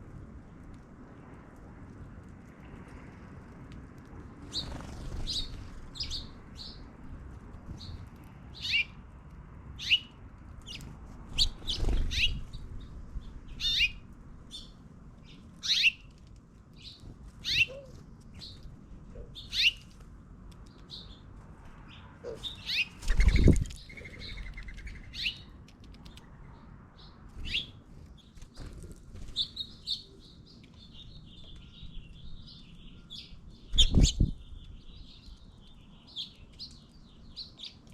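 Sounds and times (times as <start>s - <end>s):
small birds chirping: 0.1s - 37.9s
low wing flutters: 4.4s - 6.0s.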